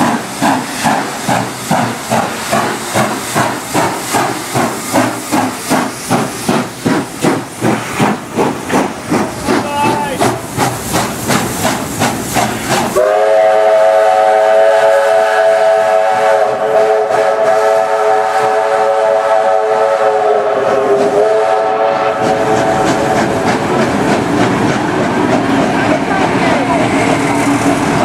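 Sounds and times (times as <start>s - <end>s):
steam locomotive exhaust chuffing: 0.0s - 28.0s
train running noise: 0.0s - 28.0s
steam whistle long blast: 13.0s - 22.9s.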